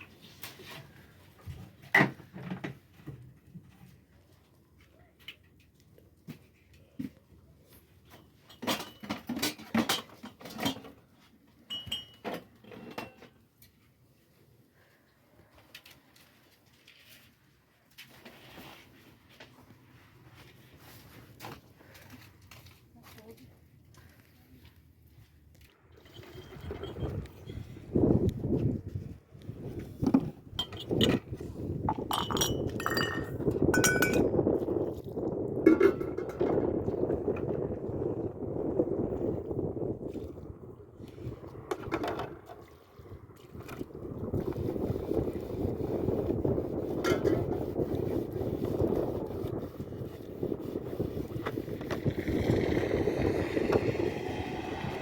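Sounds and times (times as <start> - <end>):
dishes and utensils clattering: 8.2 - 11.0, 11.7 - 13.4, 31.9 - 34.3, 35.7 - 36.6
metal or glass clinking: 11.7 - 13.2, 26.0 - 27.6, 30.6 - 31.2, 31.9 - 34.3.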